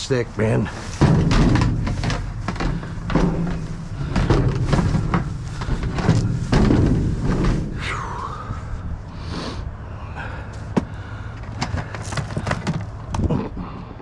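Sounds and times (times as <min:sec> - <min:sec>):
steady low rumble: 0:00.0 - 0:14.0
knocks and thumps: 0:00.8 - 0:07.8, 0:10.7 - 0:13.3.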